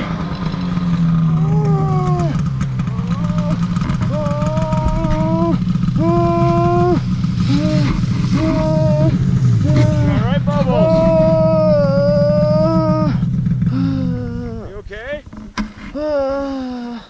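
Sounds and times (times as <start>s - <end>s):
snowmobile engine idling: 0.0s - 16.8s
man gasping and groaning: 3.0s - 10.2s, 10.8s - 14.8s, 15.9s - 17.0s.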